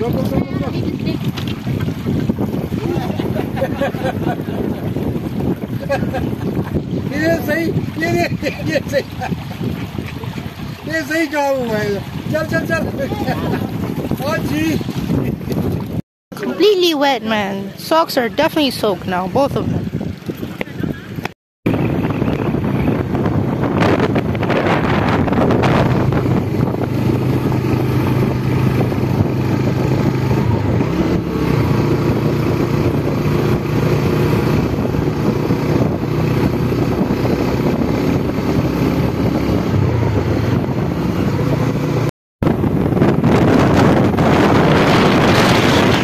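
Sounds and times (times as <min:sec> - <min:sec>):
wind buffeting microphone: 0:00.0 - 0:46.0
motorcycle engine running: 0:19.6 - 0:46.0.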